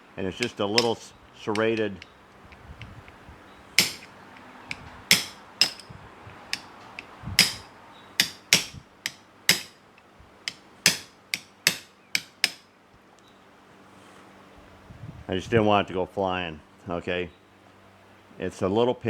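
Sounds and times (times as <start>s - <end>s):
hammer tapping metal punch: 0.4s - 3.0s, 3.8s - 9.8s, 10.5s - 12.6s.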